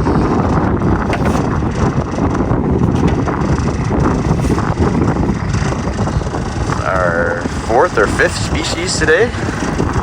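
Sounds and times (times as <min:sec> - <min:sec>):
wind buffeting microphone: 0:00.0 - 0:10.0
scattered clicks and knocks: 0:01.0 - 0:03.3.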